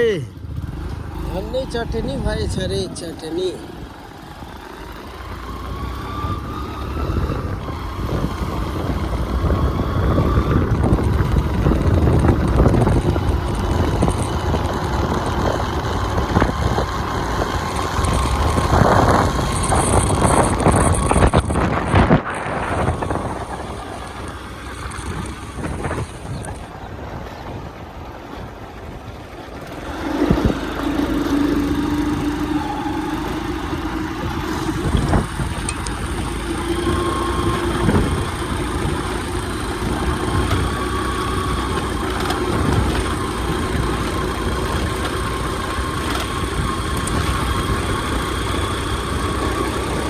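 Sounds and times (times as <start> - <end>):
vehicle engine running: 0.0 - 50.0
wind buffeting microphone: 0.0 - 50.0.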